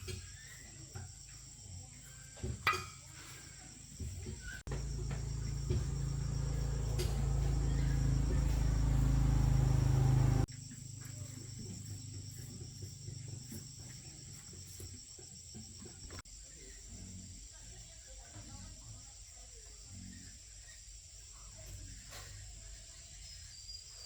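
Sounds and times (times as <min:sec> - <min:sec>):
small workshop noises: 0:00.0 - 0:24.0
machine humming: 0:04.7 - 0:10.5.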